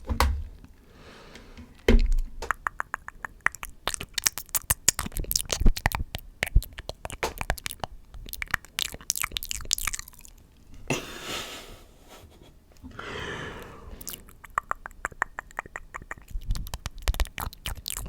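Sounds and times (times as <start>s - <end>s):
tongue and lip clicks and pops: 2.0s - 10.4s, 14.0s - 18.0s.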